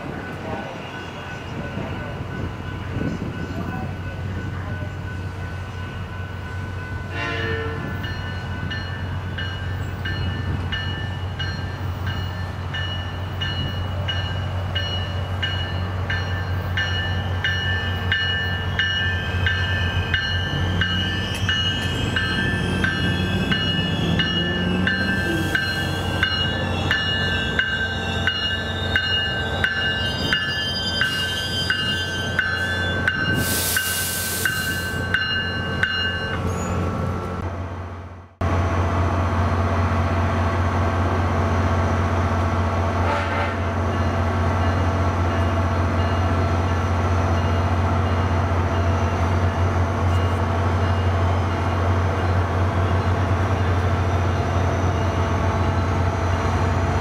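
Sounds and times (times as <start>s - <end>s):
train rumbling into station: 0.0s - 57.0s
bell ringing: 2.4s - 36.8s
air hiss: 33.4s - 35.0s.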